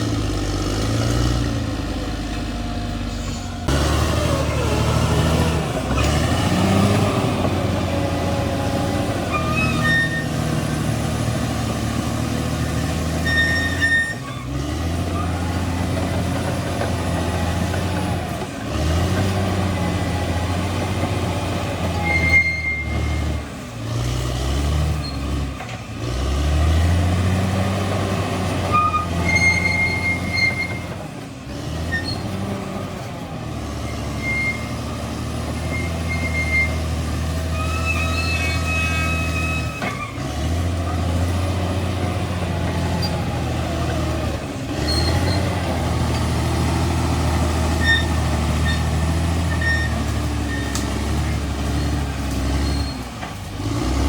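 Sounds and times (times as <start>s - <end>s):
bulldozer diesel engine under load: 0.0s - 54.0s
short high-pitched squeals: 9.3s - 10.4s, 13.2s - 14.6s, 21.9s - 23.4s, 28.7s - 31.0s, 33.8s - 34.9s, 35.6s - 40.2s, 47.7s - 48.9s, 49.5s - 50.8s, 52.6s - 53.2s.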